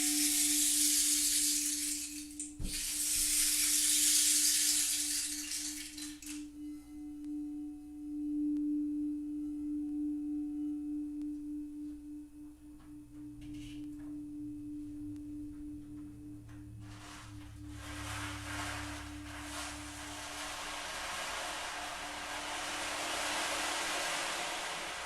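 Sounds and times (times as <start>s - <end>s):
soft hissing wash: 0.0s - 7.0s, 16.7s - 25.0s
crystal singing bowl tone: 0.0s - 25.0s.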